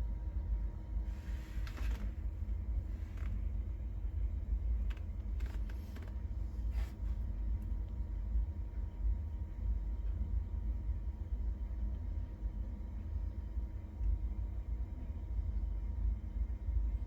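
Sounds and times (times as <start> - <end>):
gas burner rumbling: 0.0 - 17.0
faint clicks and rustles: 1.1 - 3.6, 4.5 - 8.0.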